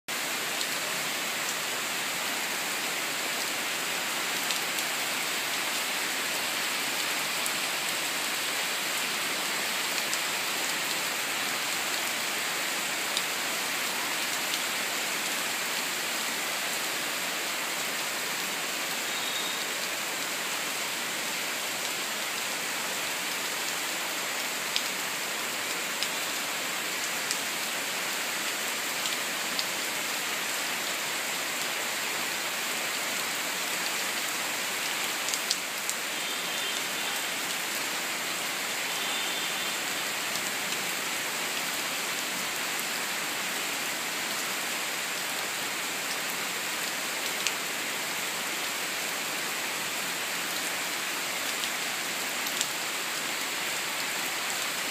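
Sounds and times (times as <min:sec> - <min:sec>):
steady rain on leaves: 0:00.1 - 0:54.9.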